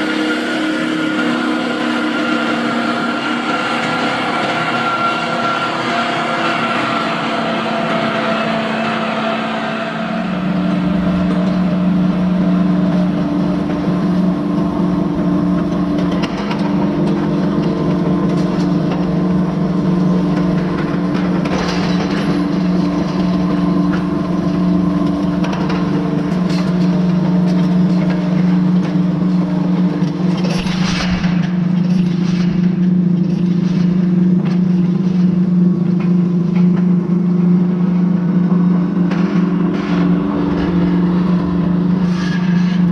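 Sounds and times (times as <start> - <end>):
tractor diesel engine droning: 0.0 - 42.9.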